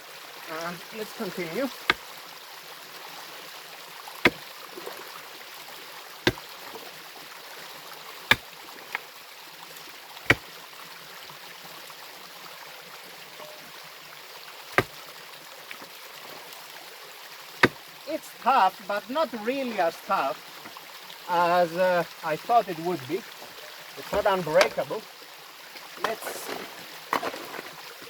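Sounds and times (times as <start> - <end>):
stream rushing: 0.0 - 11.5, 12.4 - 28.0
pickaxe striking stone: 4.2 - 4.4, 6.3 - 6.5, 14.8 - 15.0, 17.6 - 17.8.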